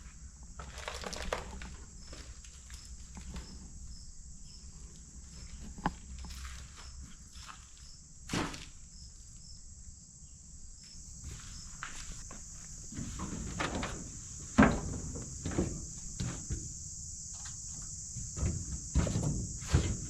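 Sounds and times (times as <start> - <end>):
crickets chirring: 0.0 - 20.0
footsteps: 4.9 - 8.8, 11.2 - 20.0.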